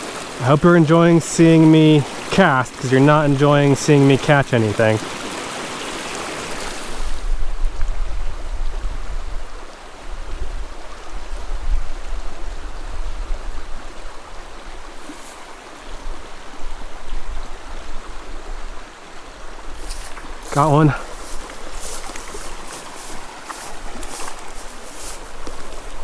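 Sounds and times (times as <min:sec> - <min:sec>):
creek water running over rocks: 0:00.0 - 0:26.0.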